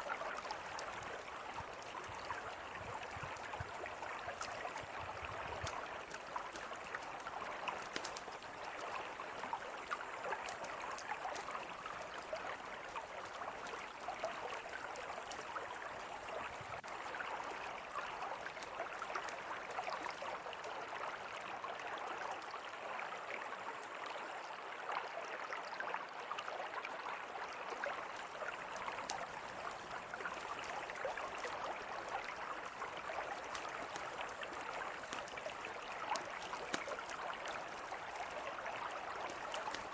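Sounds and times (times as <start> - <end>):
river flowing: 0.0 - 39.9
campfire crackling and popping: 0.1 - 20.2, 28.0 - 39.9.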